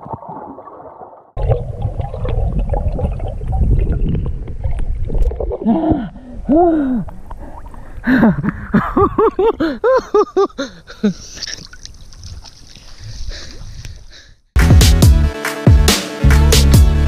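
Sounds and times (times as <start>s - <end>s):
water splashing and sloshing: 0.0s - 6.3s, 7.1s - 9.6s, 11.2s - 14.1s.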